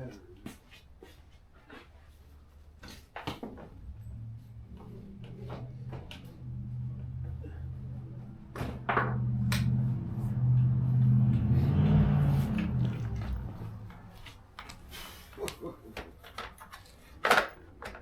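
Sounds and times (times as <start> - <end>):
low steady hum: 3.8 - 14.8.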